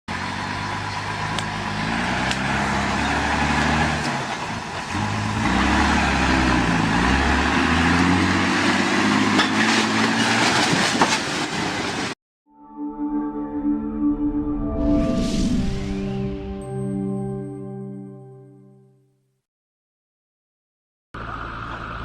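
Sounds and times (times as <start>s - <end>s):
truck engine running: 0.1s - 10.4s, 21.2s - 22.0s
road noise: 0.1s - 12.2s, 21.2s - 22.0s.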